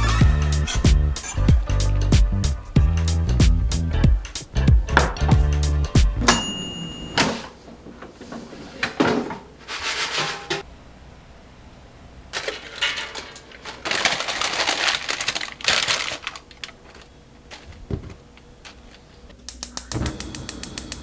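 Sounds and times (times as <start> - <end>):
rustling and scraping: 7.2 - 10.7
evenly spaced taps: 19.5 - 21.0.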